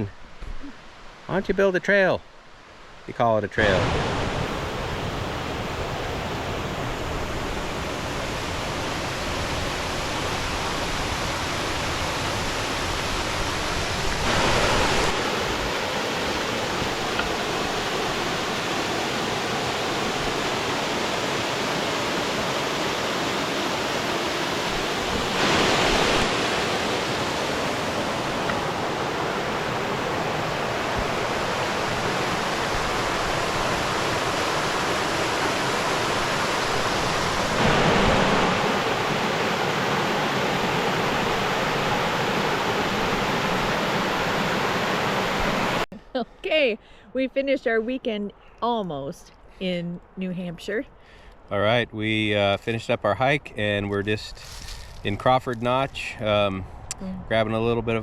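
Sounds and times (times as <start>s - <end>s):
waterfall and brook rushing: 0.8s - 45.9s.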